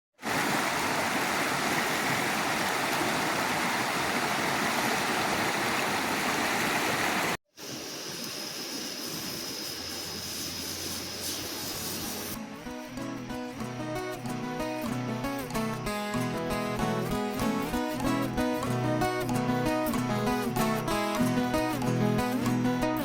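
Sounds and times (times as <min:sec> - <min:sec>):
waterfall rushing: 0:00.2 - 0:09.9.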